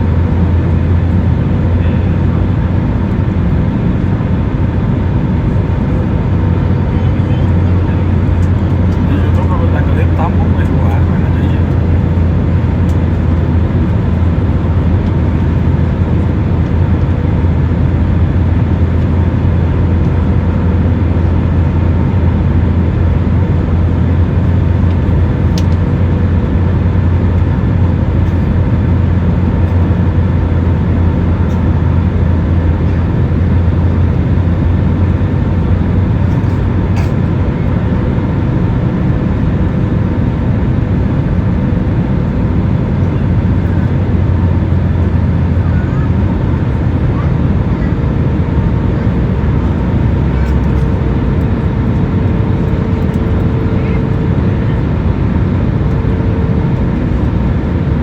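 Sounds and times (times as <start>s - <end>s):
airliner cabin rumble: 0.0s - 58.0s
faint steady hum: 0.0s - 58.0s.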